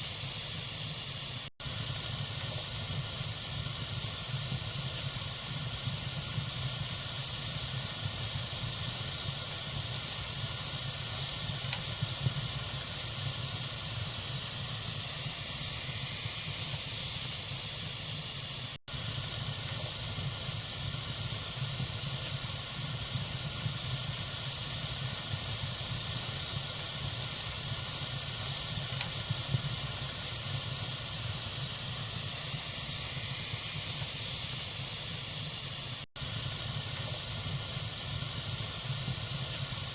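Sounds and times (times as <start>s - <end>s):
fire hissing: 0.0s - 39.9s
wood fire crackling: 0.0s - 39.9s.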